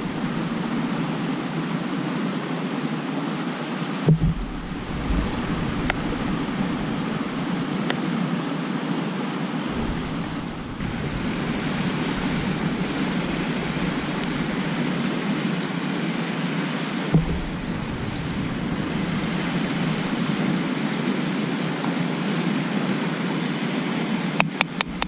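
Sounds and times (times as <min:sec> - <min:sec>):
low thump: 0:00.0 - 0:01.3, 0:04.1 - 0:08.0, 0:09.7 - 0:15.5, 0:17.1 - 0:20.8
rushing water: 0:00.0 - 0:25.0
wind: 0:00.0 - 0:25.0.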